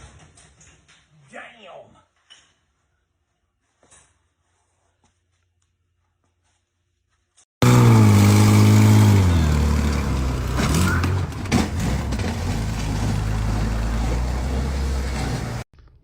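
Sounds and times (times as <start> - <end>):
car engine starting and running: 7.6 - 15.7.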